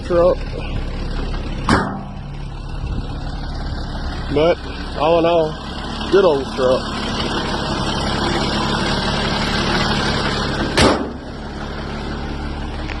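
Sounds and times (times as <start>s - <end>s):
truck engine idling: 0.0s - 13.0s
sharp thump: 1.6s - 2.3s, 10.7s - 11.2s.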